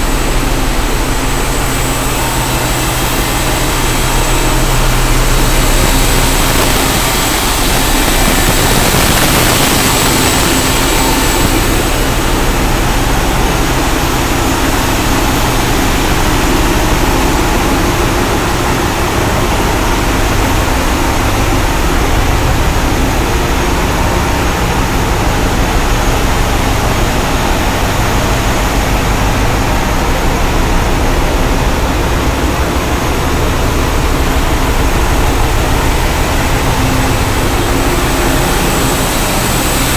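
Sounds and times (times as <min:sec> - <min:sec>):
high hiss: 0:00.0 - 0:14.7
deep hum: 0:00.0 - 0:39.9
heavy engines running: 0:00.0 - 0:39.9.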